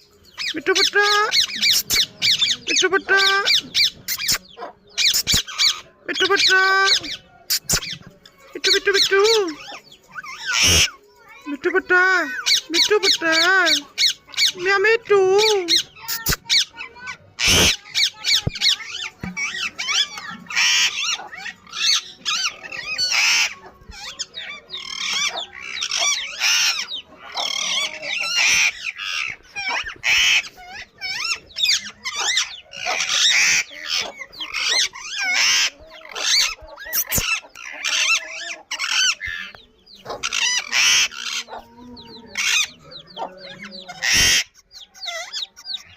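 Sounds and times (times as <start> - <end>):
parakeet chicks calling: 0.0 - 45.9.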